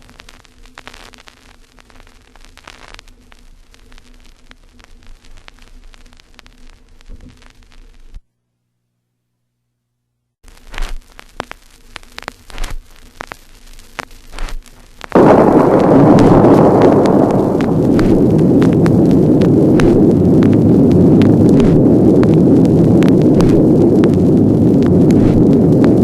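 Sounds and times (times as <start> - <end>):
vinyl crackle and pops: 0.0 - 8.3, 10.4 - 26.0
loud rushing sound: 15.2 - 26.0.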